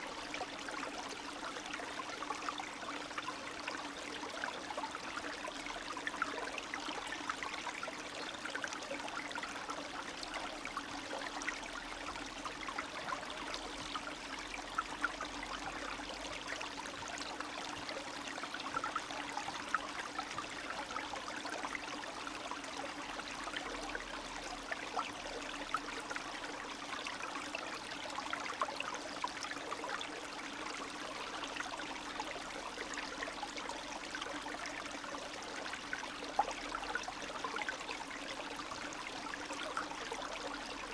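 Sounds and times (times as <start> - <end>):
stream trickling and babbling: 0.0 - 40.9.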